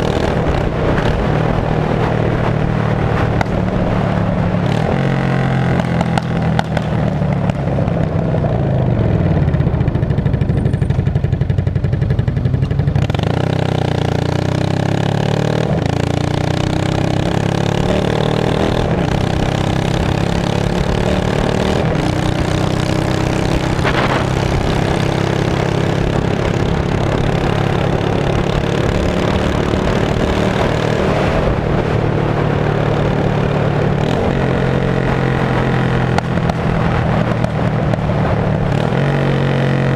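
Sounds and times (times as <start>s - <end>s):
loud motorcycle engine revving: 0.0s - 39.9s.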